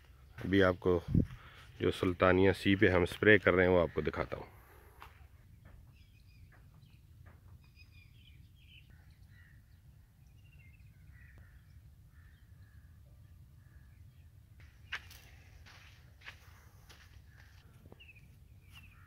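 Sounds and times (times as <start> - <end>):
faint bird chirps: 4.0 - 15.9.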